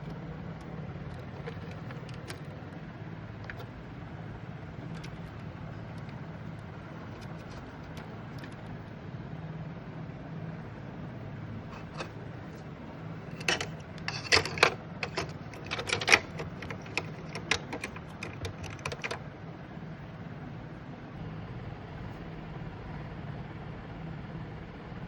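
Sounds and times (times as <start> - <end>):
plastic parts clicking and clattering: 0.0 - 3.8, 4.8 - 8.8, 11.7 - 19.2
steady low hum: 0.0 - 25.0.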